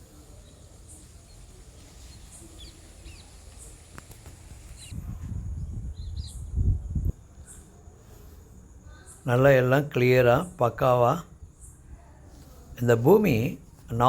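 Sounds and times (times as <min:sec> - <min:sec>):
small birds chirping: 0:00.0 - 0:14.0
low rumbling on microphone: 0:04.4 - 0:07.5.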